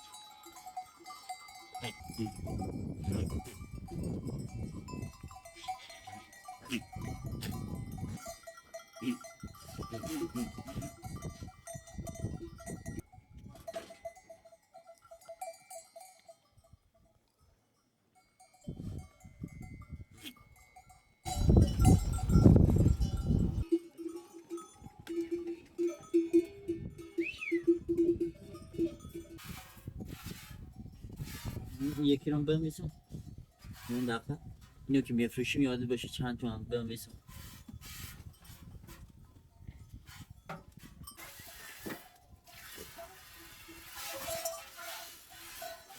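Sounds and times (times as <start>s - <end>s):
lower-pitched bell ringing: 0.0s - 16.8s, 18.4s - 29.4s
sheep bells clanking: 0.0s - 36.2s, 36.9s - 45.9s.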